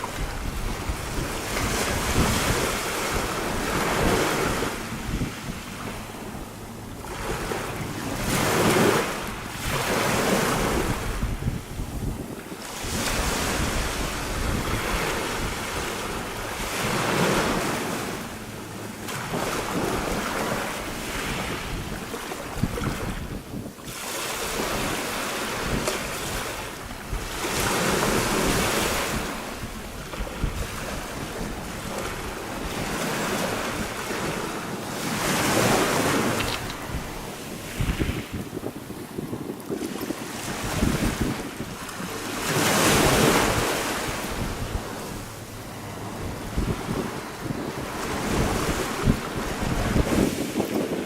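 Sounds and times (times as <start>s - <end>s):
wind buffeting microphone: 0.0s - 51.0s
waves washing over pebbles: 19.0s - 51.0s.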